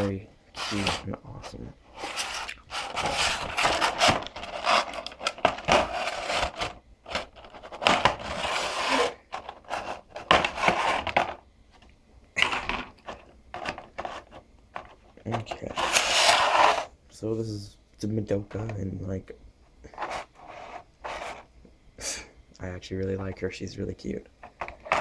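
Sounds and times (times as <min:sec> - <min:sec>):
packaging rustling and scraping: 0:00.0 - 0:11.4, 0:12.4 - 0:16.9, 0:19.9 - 0:21.5, 0:24.4 - 0:25.0.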